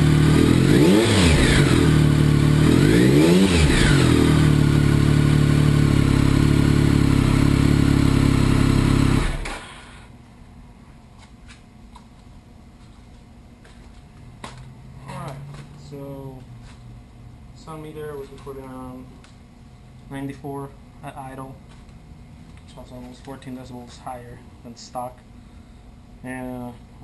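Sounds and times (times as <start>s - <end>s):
motorcycle engine idling: 0.0s - 0.7s, 1.3s - 3.0s, 3.7s - 9.6s.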